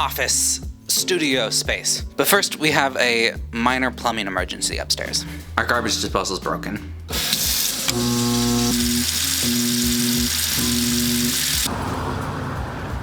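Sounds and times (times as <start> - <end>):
garbage disposal grinding: 7.1 - 11.7.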